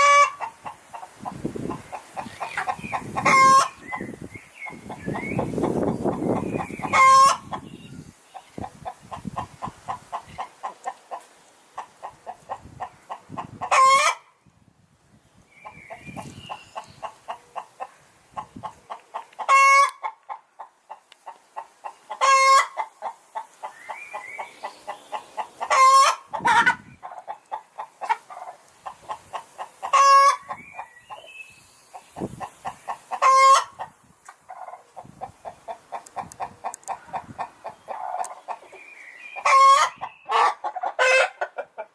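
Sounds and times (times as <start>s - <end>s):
hen clucking: 0.0s - 14.3s, 15.6s - 41.9s.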